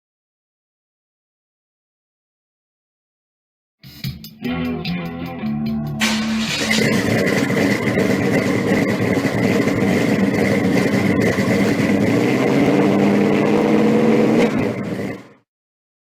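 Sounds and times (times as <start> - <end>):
car engine running: 6.0 - 15.4.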